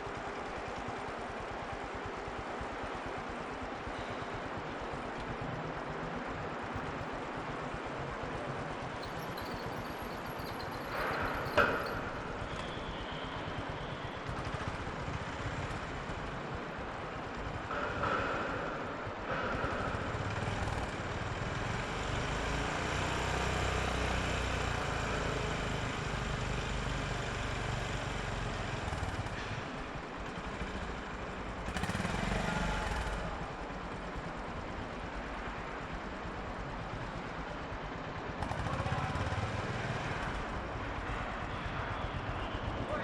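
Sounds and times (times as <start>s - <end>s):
motorcycle engine running: 9.0s - 13.6s, 30.3s - 36.4s.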